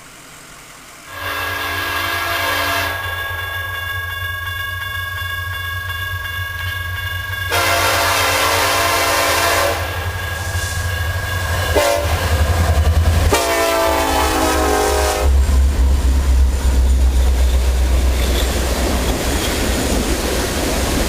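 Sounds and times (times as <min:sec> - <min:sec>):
locomotive rumbling: 0:00.0 - 0:21.0
locomotive air horn blasts: 0:01.1 - 0:03.2, 0:07.5 - 0:10.1, 0:11.7 - 0:12.2, 0:13.3 - 0:15.4.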